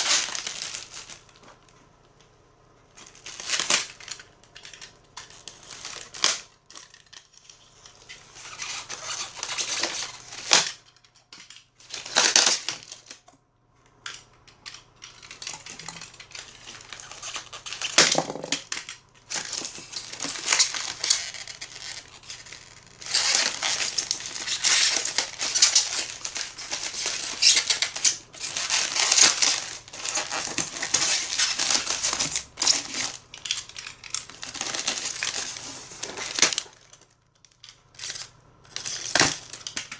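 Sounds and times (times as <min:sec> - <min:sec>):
plastic packaging crinkling: 0:00.0 - 0:02.2, 0:03.0 - 0:13.3, 0:14.0 - 0:39.9.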